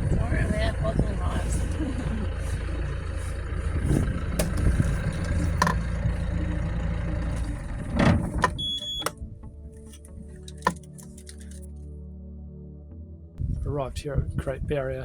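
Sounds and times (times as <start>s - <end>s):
boat engine rumbling: 0.0s - 11.7s
knocks and clunks: 3.8s - 6.4s, 7.4s - 9.6s.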